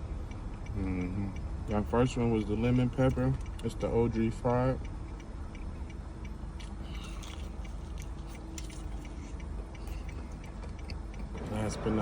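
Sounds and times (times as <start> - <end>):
low steady hum: 0.0 - 12.0
person chewing crispy chicken: 6.6 - 11.3.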